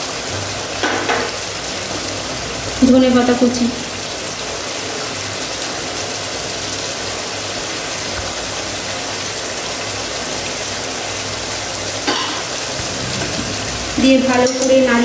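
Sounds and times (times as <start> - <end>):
curry sizzling in a pan: 0.0 - 15.0.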